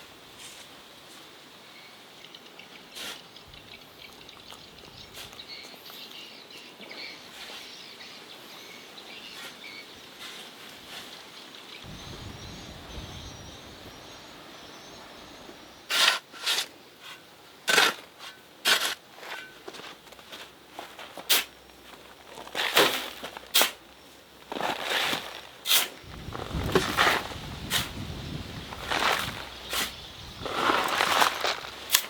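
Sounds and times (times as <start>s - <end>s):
steady outdoor hiss: 0.0s - 32.0s
faint high bird chirps: 11.4s - 15.9s.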